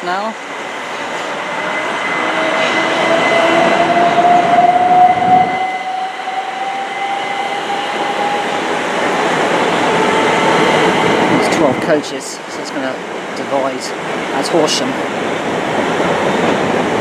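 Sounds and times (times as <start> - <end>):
train wheels on track: 0.0 - 17.0
electric train motor whine: 1.1 - 11.4.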